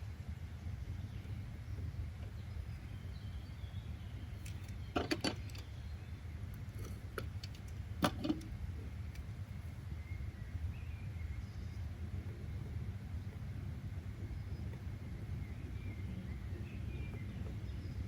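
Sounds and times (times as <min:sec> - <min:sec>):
sharp clicks and knocks: 0:04.4 - 0:05.6, 0:06.8 - 0:08.5.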